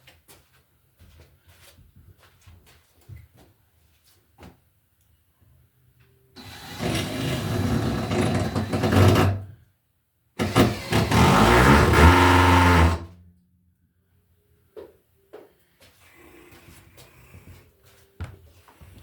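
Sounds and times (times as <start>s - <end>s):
motor running: 10.4s - 13.1s.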